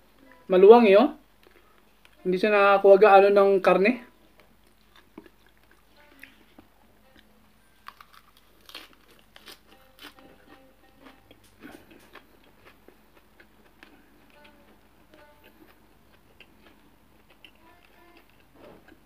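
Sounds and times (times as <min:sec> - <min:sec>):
person chewing crisp lettuce: 0:04.3 - 0:19.0.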